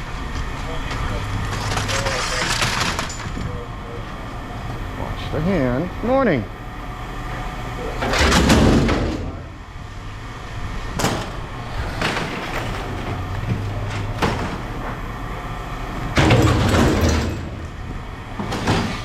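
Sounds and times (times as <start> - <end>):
steady low hum: 0.0 - 19.0
scrap metal clanking: 11.0 - 15.0, 16.1 - 19.0.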